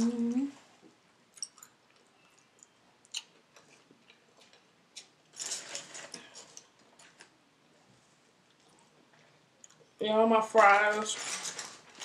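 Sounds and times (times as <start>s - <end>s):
chewing crunches and clicks: 1.3s - 5.1s, 9.6s - 9.9s.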